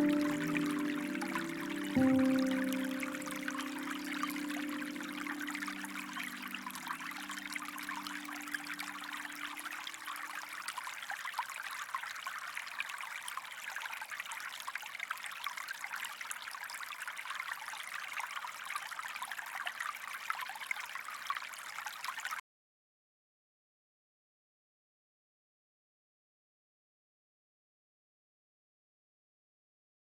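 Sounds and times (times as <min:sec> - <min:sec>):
soft background music: 0:00.0 - 0:09.8
stream trickling: 0:00.0 - 0:22.4.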